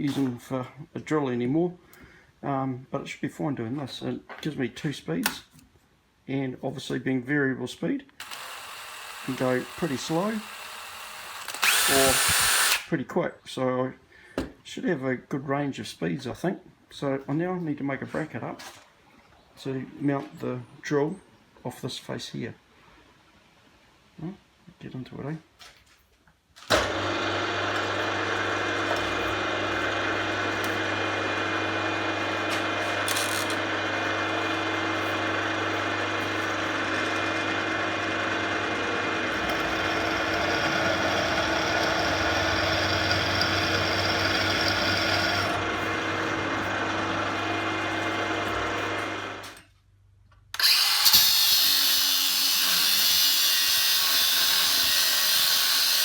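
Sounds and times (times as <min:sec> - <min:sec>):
hissy power tool: 0:08.2 - 0:12.9, 0:39.3 - 0:47.6
power tool humming under load: 0:08.2 - 0:12.9, 0:26.7 - 0:49.6.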